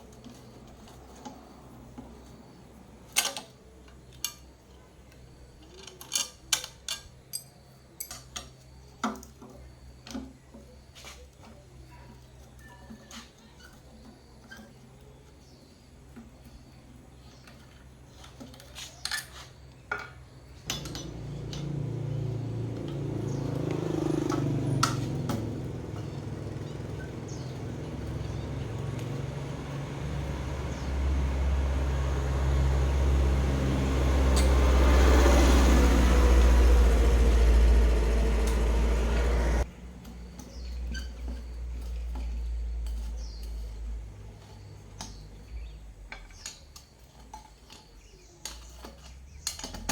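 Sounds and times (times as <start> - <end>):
light clicks and clinks: 3.1 - 16.4, 17.3 - 30.9.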